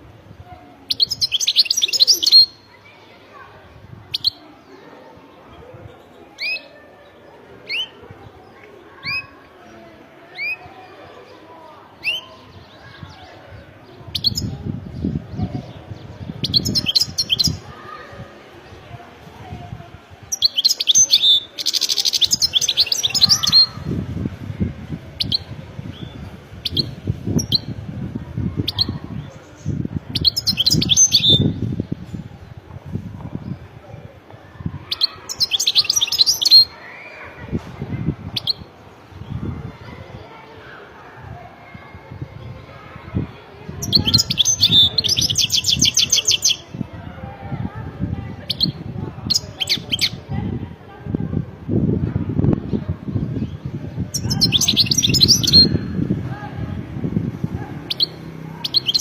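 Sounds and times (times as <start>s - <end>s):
goldfinch twittering song: 54.1s - 55.8s.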